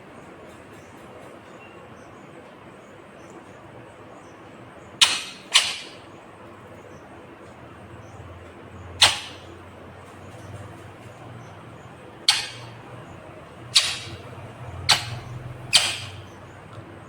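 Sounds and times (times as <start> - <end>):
parakeet squawking: 5.0 - 6.1, 9.0 - 9.6, 10.2 - 16.6.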